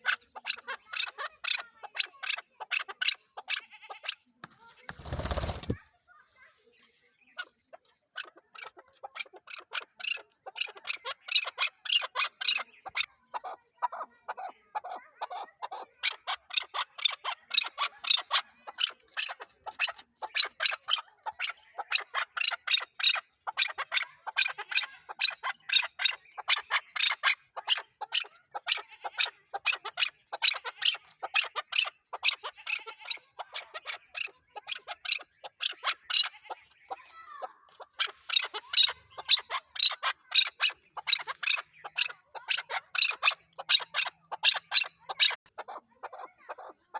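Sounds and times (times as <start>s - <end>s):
partridge calling rapid short notes: 4.6s - 5.9s, 37.0s - 45.4s.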